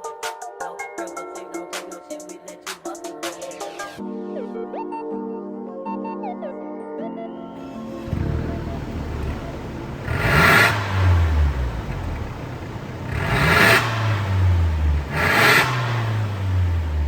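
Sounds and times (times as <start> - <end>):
car engine idling: 7.6 - 17.0
car engine revving: 7.6 - 17.0.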